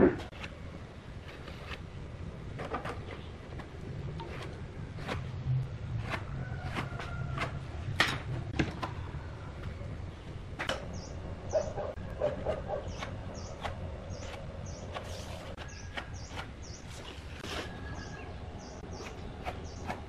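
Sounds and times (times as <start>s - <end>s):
small bird chirping: 10.8s - 20.0s.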